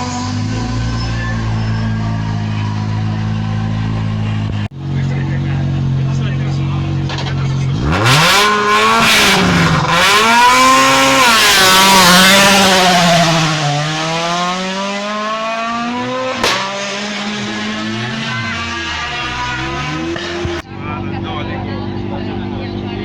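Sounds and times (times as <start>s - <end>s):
rally car engine accelerating: 0.0s - 23.0s
sharp crack: 16.3s - 17.0s.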